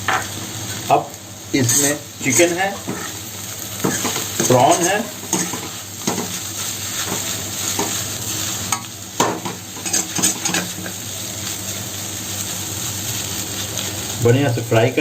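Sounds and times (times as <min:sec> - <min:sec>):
noodles sizzling in a pan: 0:00.0 - 0:15.0
utensil scraping and knocking pan: 0:03.8 - 0:06.4, 0:08.7 - 0:10.9.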